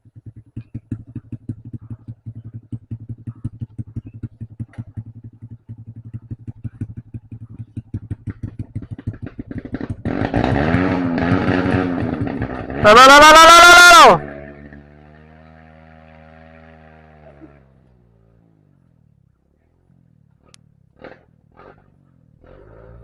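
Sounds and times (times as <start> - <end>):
motorcycle engine putting: 0.0 - 23.0
louder engine revving: 7.9 - 18.6, 20.4 - 23.0.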